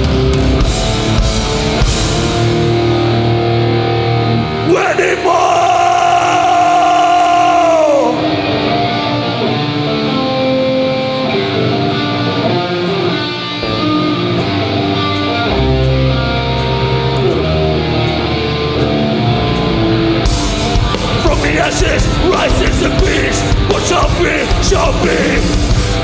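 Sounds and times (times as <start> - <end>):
electric guitar riff: 0.0 - 26.0
low bass notes: 13.6 - 26.0.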